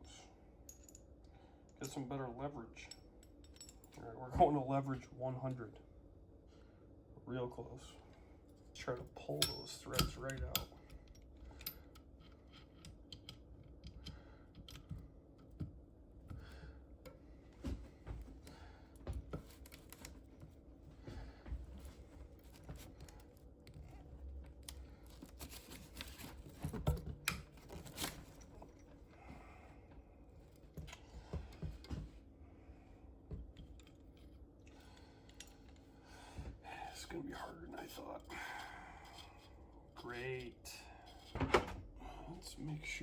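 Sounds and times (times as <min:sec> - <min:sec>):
metallic clicks of hand tools: 0:09.3 - 0:15.7.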